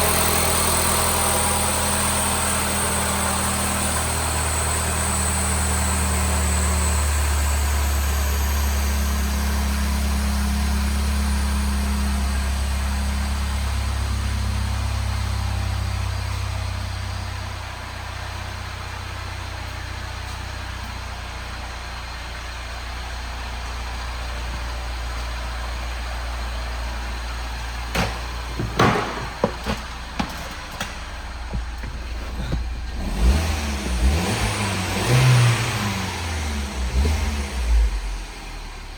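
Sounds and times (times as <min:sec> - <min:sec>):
car engine idling: 0:00.0 - 0:38.9
sharp knocks and clicks: 0:27.9 - 0:32.7.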